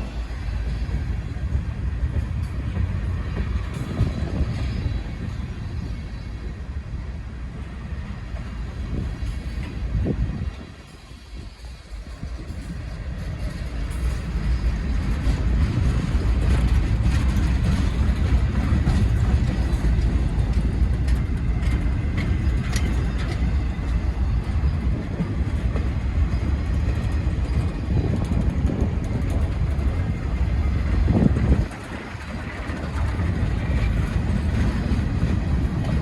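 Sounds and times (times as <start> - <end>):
freight train rolling past: 0.0 - 36.0
faint rail clicks: 8.3 - 36.0.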